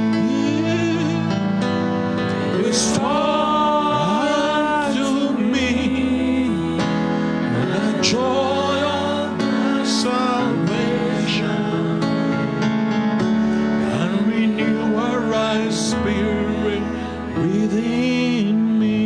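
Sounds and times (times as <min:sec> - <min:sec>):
person singing: 0:00.0 - 0:19.0
sustained keyboard chords: 0:00.0 - 0:19.0.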